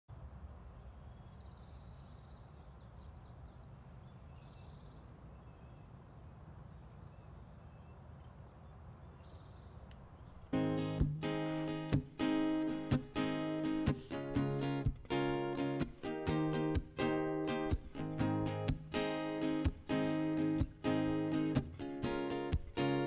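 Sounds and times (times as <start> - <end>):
acoustic guitar music: 10.5 - 23.0.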